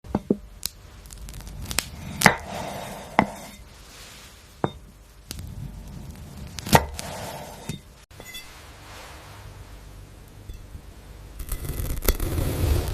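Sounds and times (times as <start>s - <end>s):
knife cutting crisp vegetables: 6.2s - 7.7s.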